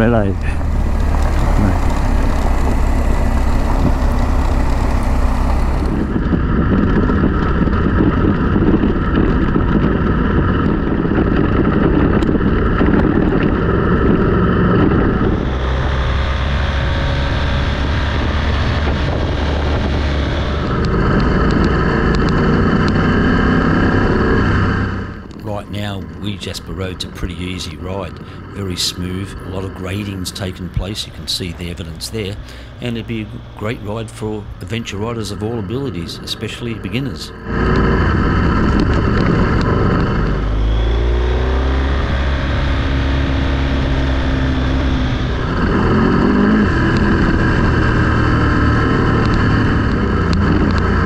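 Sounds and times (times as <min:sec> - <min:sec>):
tyres on gravel: 0:00.0 - 0:06.2, 0:25.2 - 0:40.4
motorcycle engine running: 0:00.0 - 0:51.0
wind noise on microphone: 0:00.0 - 0:51.0.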